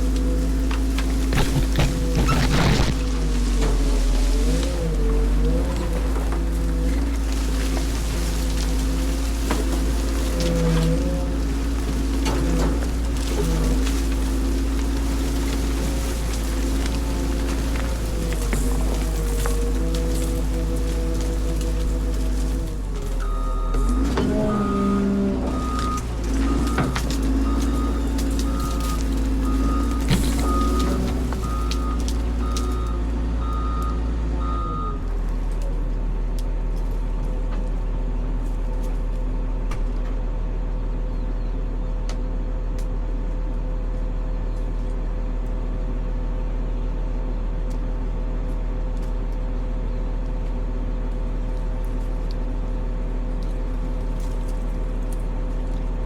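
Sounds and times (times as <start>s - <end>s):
diesel engine running: 0.0s - 56.0s
reversing alarm beeping: 23.2s - 35.1s.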